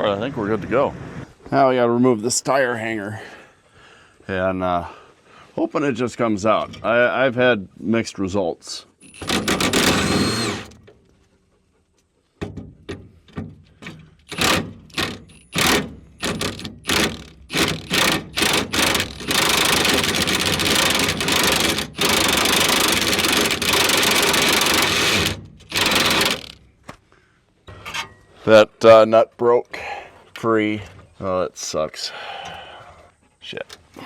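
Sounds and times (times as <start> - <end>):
impact wrench hammering: 9.0 - 10.8, 12.4 - 26.6.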